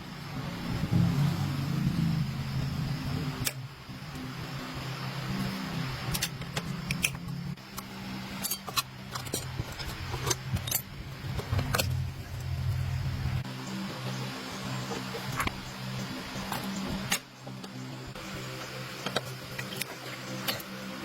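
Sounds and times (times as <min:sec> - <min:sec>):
steady low hum: 0:00.0 - 0:21.0
metal tools clinking: 0:08.4 - 0:12.0.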